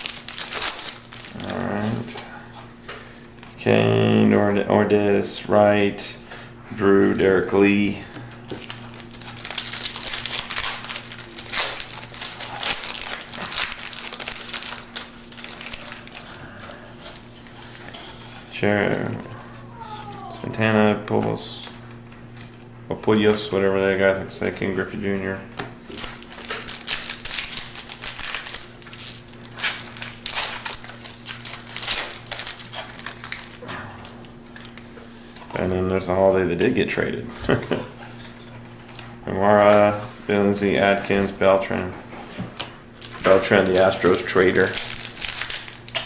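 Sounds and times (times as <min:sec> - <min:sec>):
plastic wrapper crinkling: 0:00.0 - 0:02.1, 0:08.4 - 0:18.0, 0:25.8 - 0:34.8, 0:42.5 - 0:46.0.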